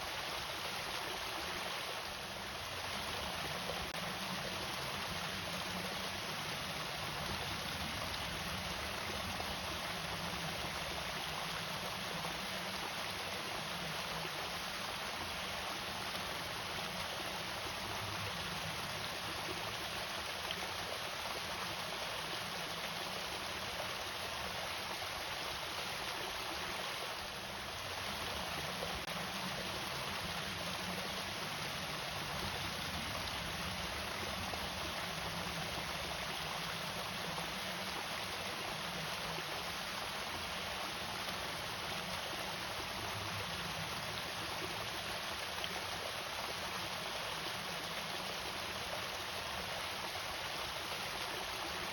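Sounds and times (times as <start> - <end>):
small waterfall rushing: 0.0 - 51.9.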